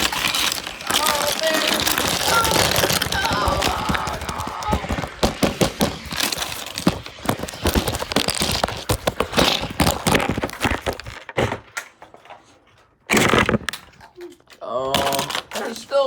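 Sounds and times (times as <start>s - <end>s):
hard objects falling and crashing: 0.0s - 14.1s, 14.9s - 15.8s.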